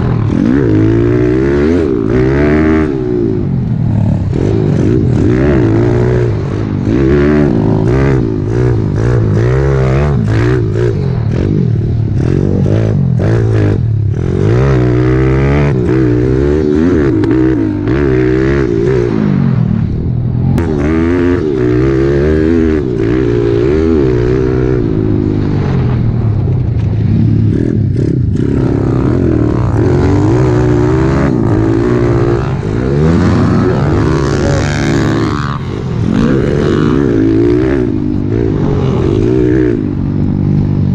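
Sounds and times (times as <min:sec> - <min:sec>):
pit bike engine revving: 0:00.0 - 0:40.9.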